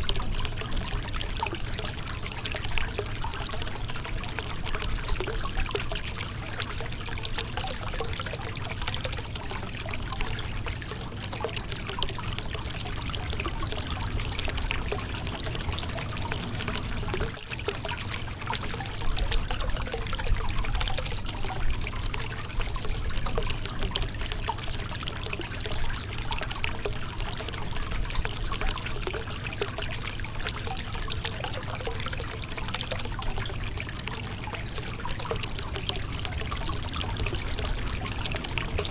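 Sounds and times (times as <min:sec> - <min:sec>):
river water flowing over rocks: 0:12.6 - 0:19.0, 0:35.6 - 0:38.9.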